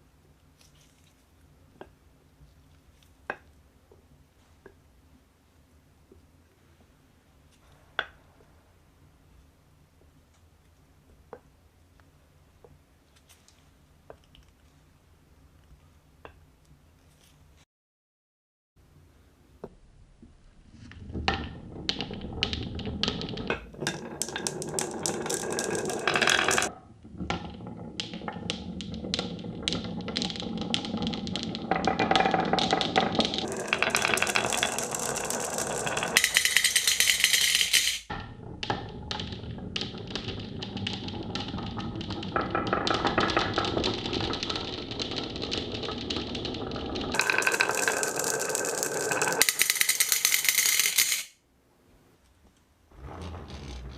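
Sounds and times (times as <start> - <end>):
marbles rolling rumble: 20.6 - 51.3, 53.0 - 53.9
marbles clicking and clacking: 21.2 - 51.4.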